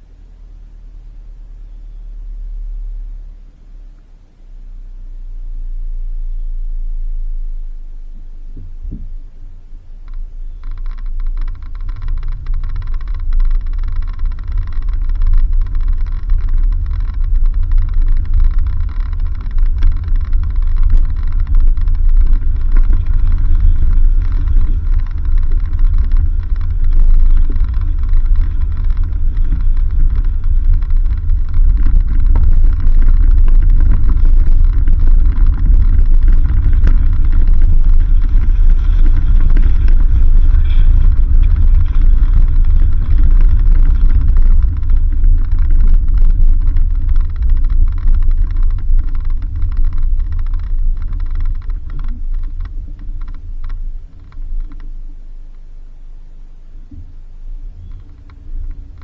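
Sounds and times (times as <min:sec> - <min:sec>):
vehicle rumbling on dirt road: 0:00.0 - 0:59.0
clicks and knocks: 0:08.5 - 0:55.7.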